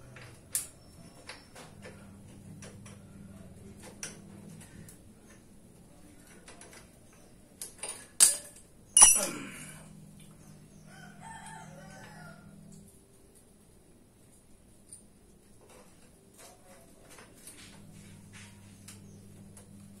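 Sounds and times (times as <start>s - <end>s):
metal tools clicking: 9.0s - 9.5s
sharp metal strikes ringing: 9.0s - 9.6s
faint rooster crowing: 10.4s - 12.9s.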